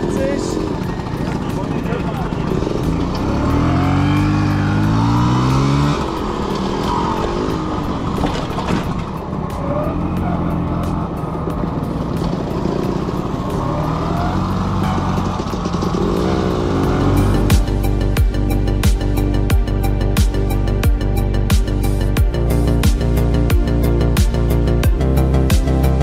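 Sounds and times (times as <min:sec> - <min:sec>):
scooter two-stroke engine: 0:00.0 - 0:18.3.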